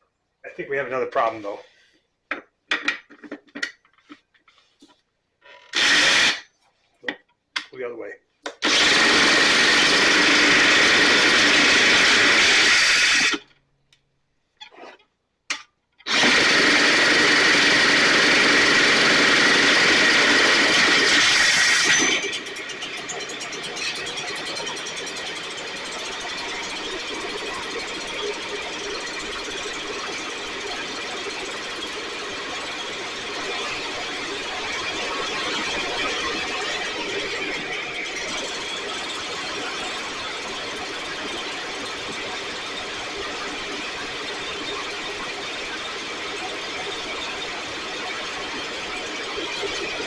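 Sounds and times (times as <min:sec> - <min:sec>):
power drill spinning engine: 0:04.8 - 0:06.5, 0:08.5 - 0:13.6, 0:16.0 - 0:50.0
small engine idling: 0:08.6 - 0:13.4, 0:16.1 - 0:50.0.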